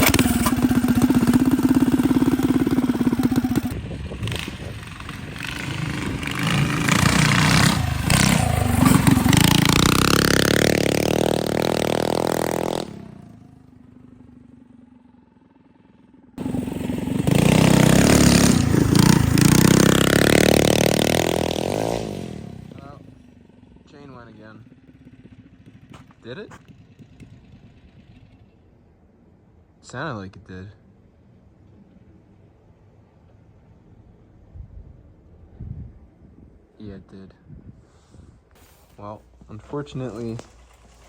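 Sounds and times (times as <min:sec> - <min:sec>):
mini bike engine revving: 0:00.0 - 0:28.8, 0:38.6 - 0:41.0.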